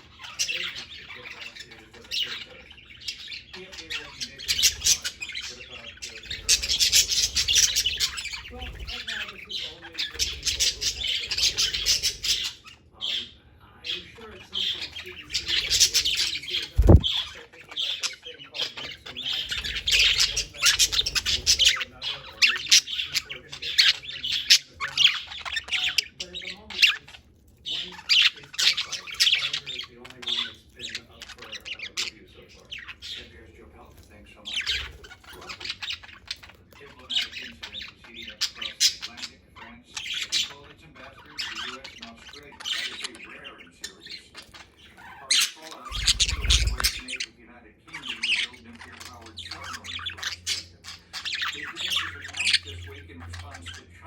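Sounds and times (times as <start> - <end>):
budgerigars chattering: 0.0 - 54.0
short low thump: 16.8 - 17.1.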